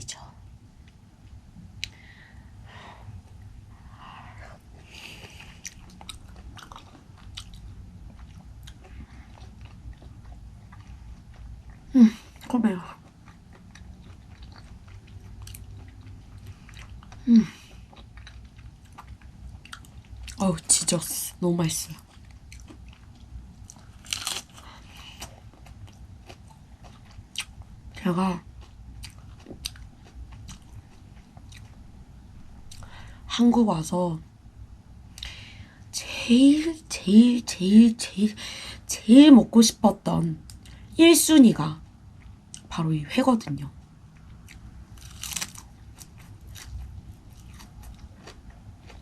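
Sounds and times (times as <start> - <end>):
person chewing: 4.3 - 20.4, 21.9 - 27.7, 28.4 - 31.9, 44.1 - 49.0.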